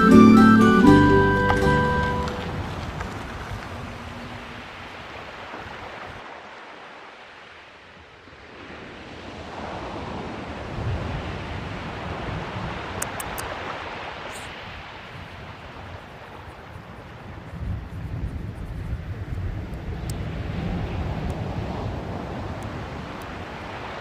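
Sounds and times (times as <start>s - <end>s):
ocean surf breaking: 0.0s - 17.4s, 20.1s - 24.0s
wind on microphone: 8.4s - 24.0s.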